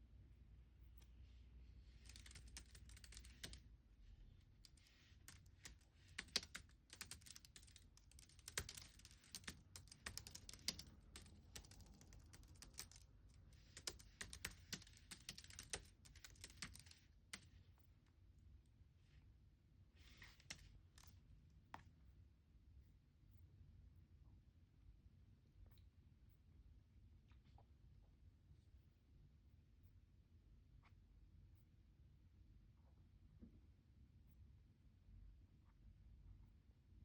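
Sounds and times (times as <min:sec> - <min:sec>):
computer keyboard typing: 0:02.0 - 0:03.6, 0:04.6 - 0:17.4.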